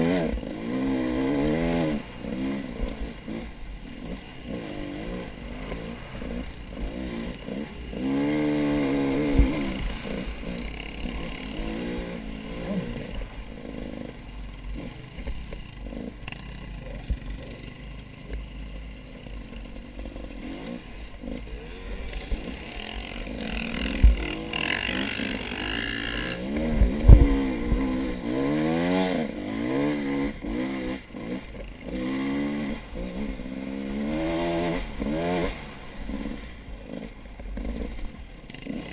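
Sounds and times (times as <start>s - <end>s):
motorcycle engines revving: 0.0s - 38.9s
low knocks and thumps: 23.8s - 24.4s, 26.6s - 27.9s.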